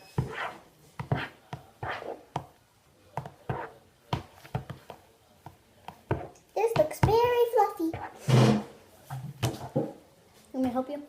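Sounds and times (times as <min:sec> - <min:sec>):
utensil scraping and knocking bowl: 0:00.0 - 0:02.5, 0:03.2 - 0:10.0.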